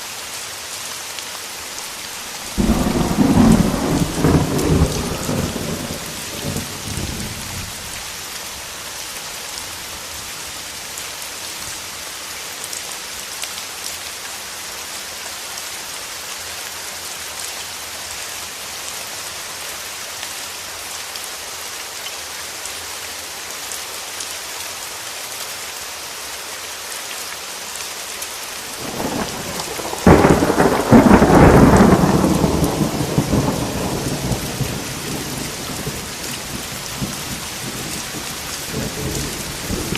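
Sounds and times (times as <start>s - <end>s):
heavy rain: 0.0s - 39.9s
thunder rumbling: 2.4s - 7.9s, 28.8s - 39.9s
thunder crack: 2.5s - 7.3s, 28.8s - 39.9s.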